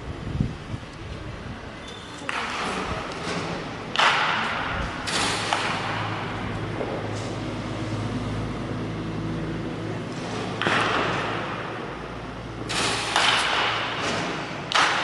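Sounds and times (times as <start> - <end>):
low machine hum: 0.0 - 14.8
ball hitting bat: 2.2 - 7.4, 10.3 - 12.0, 12.6 - 15.0.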